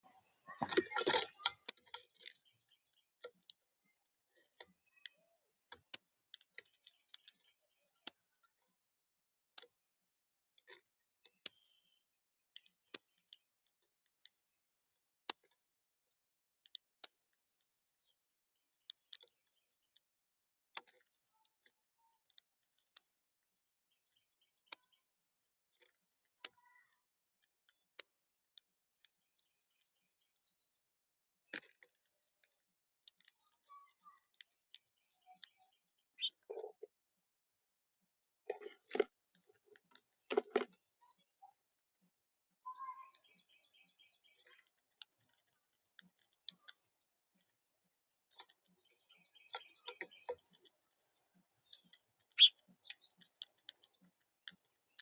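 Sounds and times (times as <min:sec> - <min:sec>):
bird chip calls: 0:33.2 - 0:36.7, 0:48.3 - 0:55.0.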